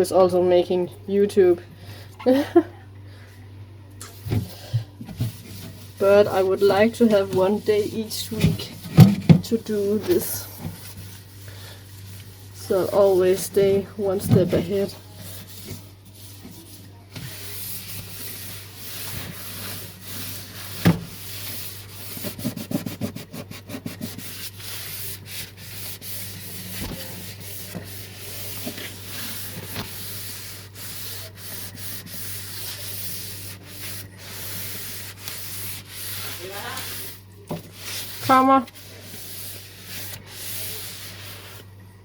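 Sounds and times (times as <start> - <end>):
cloth wiping surfaces: 5.1 - 41.7.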